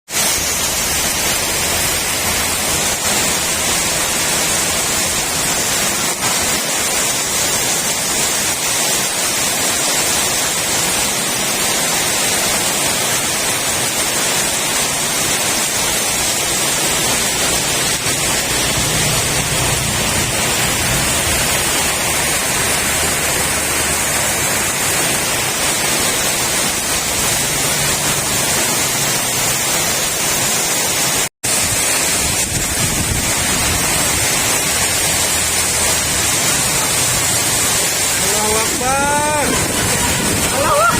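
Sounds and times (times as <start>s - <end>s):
heavy rain pouring: 0.0s - 40.9s
wind gusting over microphone: 31.5s - 35.2s, 36.8s - 40.9s.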